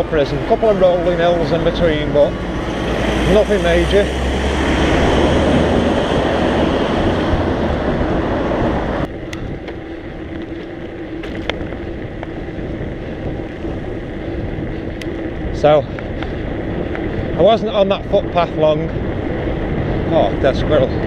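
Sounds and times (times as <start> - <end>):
wind on microphone: 0.0 - 21.0
rolling noise: 5.1 - 21.0.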